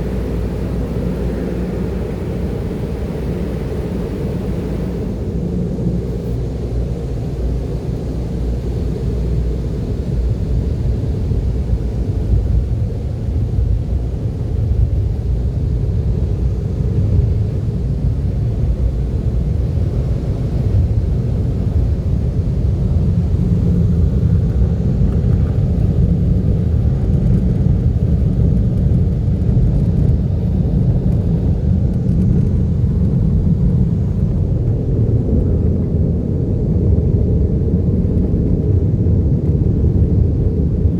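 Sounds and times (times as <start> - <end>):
car wash low rumble: 0.0 - 40.9.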